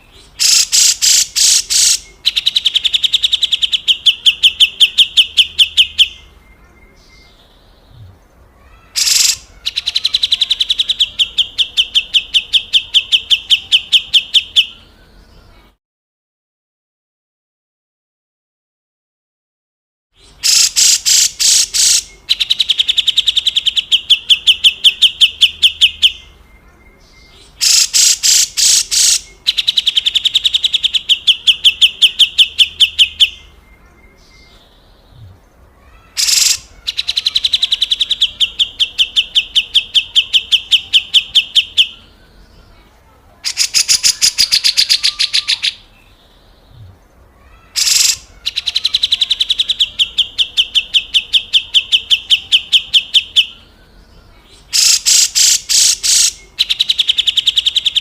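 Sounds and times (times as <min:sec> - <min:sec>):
bird harsh rattling call: 0:00.4 - 0:02.0, 0:08.9 - 0:10.3, 0:20.4 - 0:22.1, 0:27.6 - 0:30.4, 0:36.0 - 0:37.4, 0:47.6 - 0:49.4, 0:54.7 - 0:56.4.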